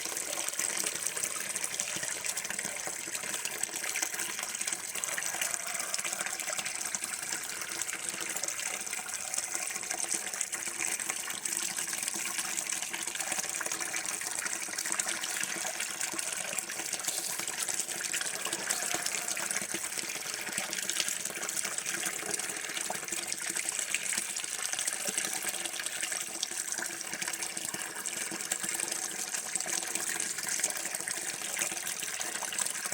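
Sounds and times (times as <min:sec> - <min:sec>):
water running from a tap: 0:00.0 - 0:32.9.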